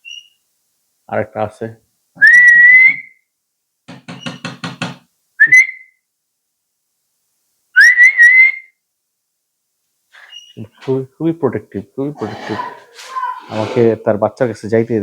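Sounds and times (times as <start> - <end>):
short rising whistles: 7.8 - 8.7.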